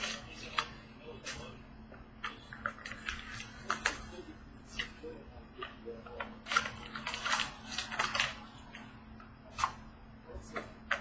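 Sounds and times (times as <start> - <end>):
faint steady hum: 0.0 - 11.0
card packaging clicks and crinkling: 2.2 - 8.8.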